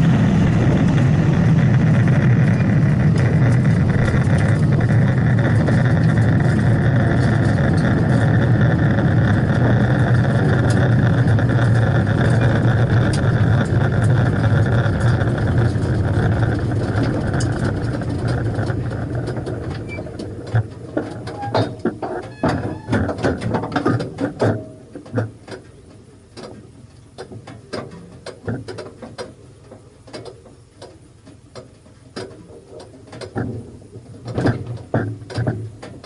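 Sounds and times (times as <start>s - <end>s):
drag car engine running: 0.0s - 26.8s.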